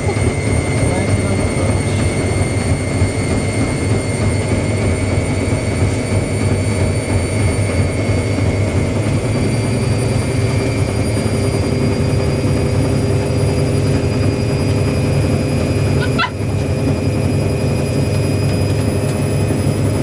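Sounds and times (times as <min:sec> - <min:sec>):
high motor whine: 0:00.0 - 0:20.0
spinning drum rumble: 0:00.0 - 0:20.0.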